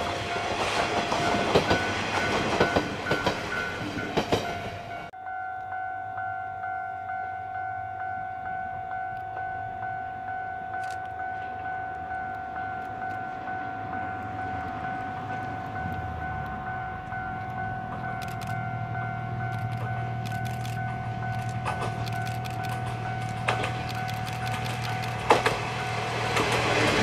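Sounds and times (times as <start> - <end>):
diesel railcar engine rumble: 0.0 - 27.0
wheels clicking over rail joints: 19.4 - 27.0.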